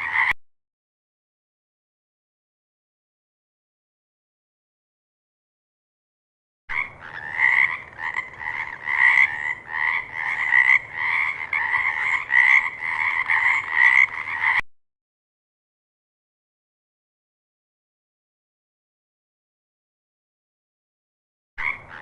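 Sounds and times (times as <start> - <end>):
frog croaking: 0.0 - 0.4, 6.7 - 14.6, 21.6 - 22.0.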